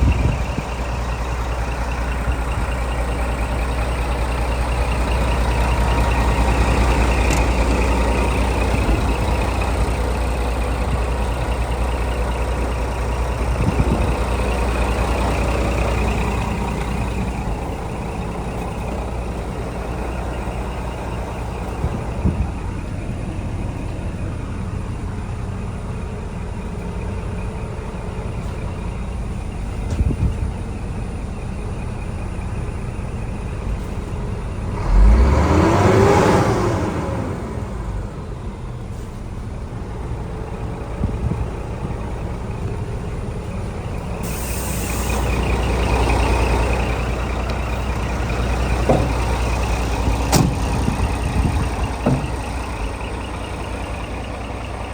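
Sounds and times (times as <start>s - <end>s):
diesel truck engine running: 0.0s - 54.9s
hiss: 44.2s - 45.5s.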